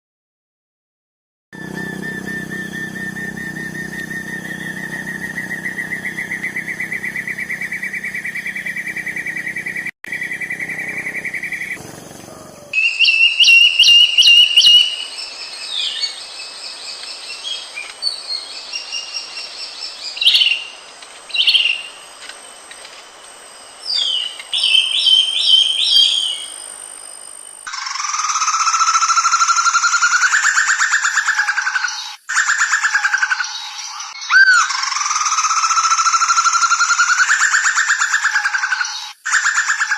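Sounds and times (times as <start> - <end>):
bird rising trill: 1.6 - 14.9.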